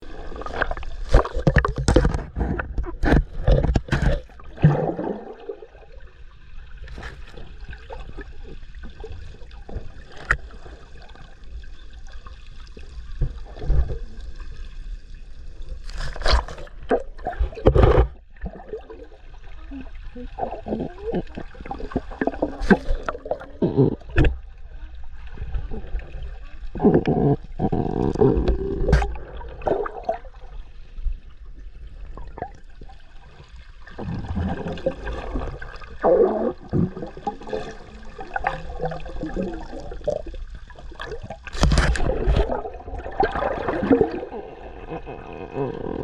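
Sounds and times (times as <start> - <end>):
water sloshing and gurgling: 0.0 - 46.0.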